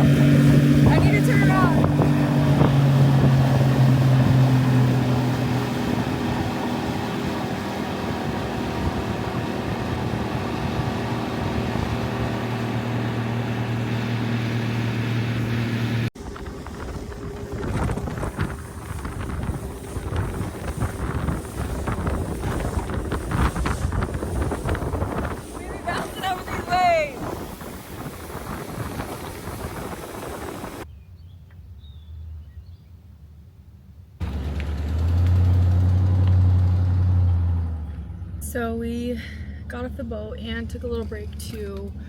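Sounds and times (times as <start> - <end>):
wind buffeting microphone: 0.0 - 13.5, 16.2 - 31.0
motorboat engine running: 0.0 - 30.9, 34.2 - 42.0.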